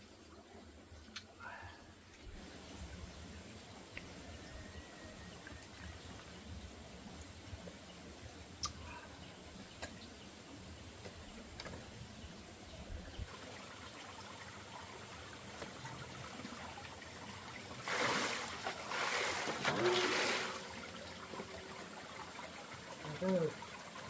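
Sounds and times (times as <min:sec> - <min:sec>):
water trickling: 0:09.6 - 0:24.0
rush of water: 0:13.2 - 0:24.0.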